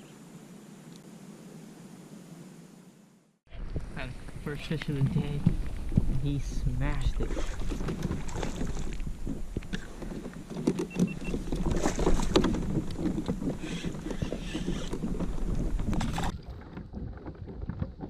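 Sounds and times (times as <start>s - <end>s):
water splashing around a kayak: 3.6s - 18.0s.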